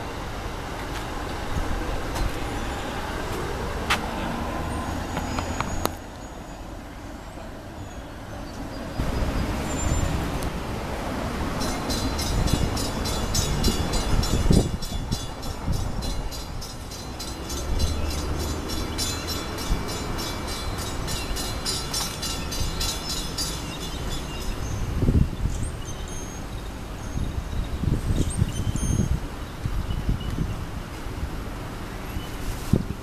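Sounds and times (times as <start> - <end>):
electric train rumbling on track: 0.0 - 27.7.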